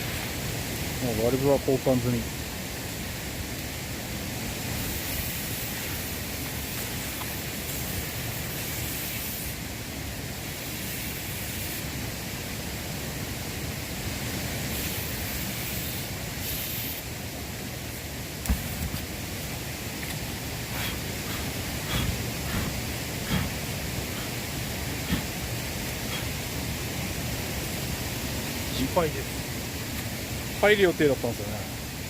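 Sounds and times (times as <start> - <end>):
outdoor rushing noise: 2.2 - 30.5.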